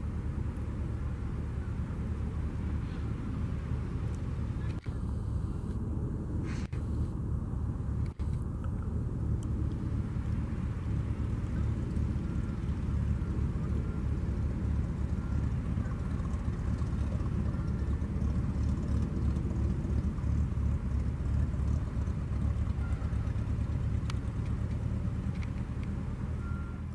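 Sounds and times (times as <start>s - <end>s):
aircraft piston engine running: 0.0s - 26.7s.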